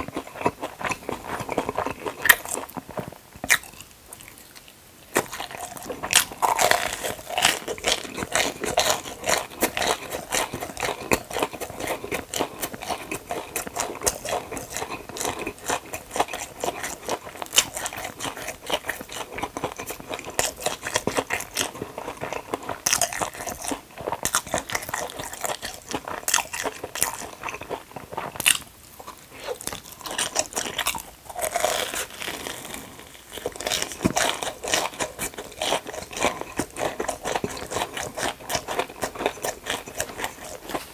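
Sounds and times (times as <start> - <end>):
crunchy chewing: 0.0 - 40.9.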